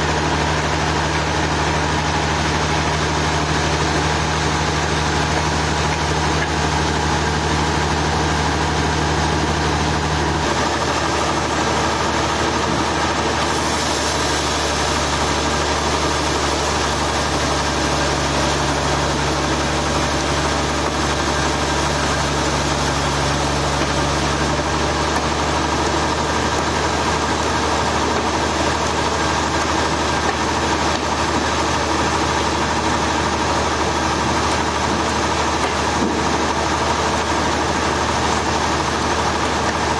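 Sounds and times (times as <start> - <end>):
sawmill engine humming: 0.0 - 39.9.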